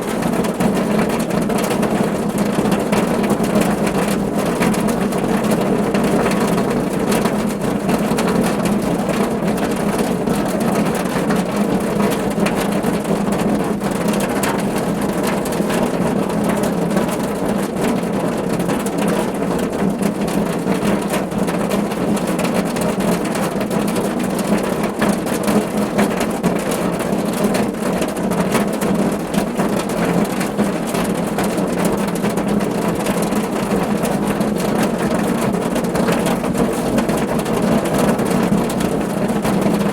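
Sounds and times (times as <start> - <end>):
rain drumming on a car roof: 0.0 - 39.9.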